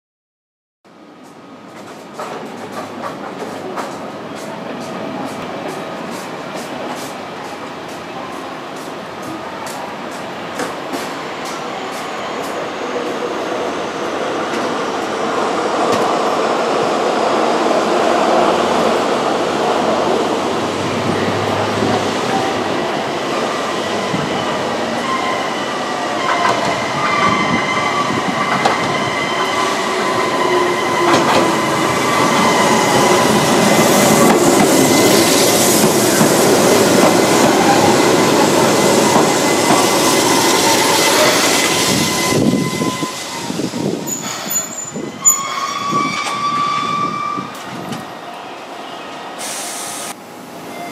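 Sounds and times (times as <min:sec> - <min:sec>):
train wheels clicking over rail joints: 0:01.7 - 0:07.1
high-pitched squeal from train: 0:04.4 - 0:14.1, 0:21.0 - 0:50.9.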